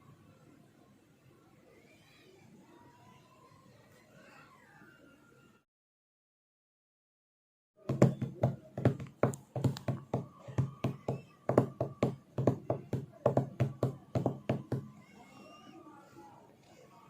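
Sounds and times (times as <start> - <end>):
rapid sharp knocks: 7.9 - 14.9.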